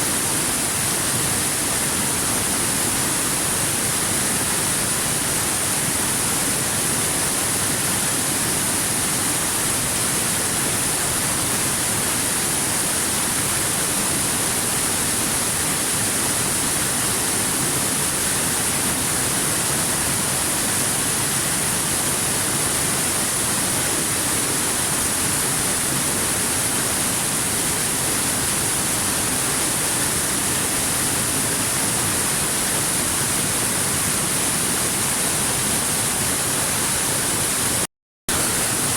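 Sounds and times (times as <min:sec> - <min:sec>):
waterfall rushing: 0:15.4 - 0:38.9.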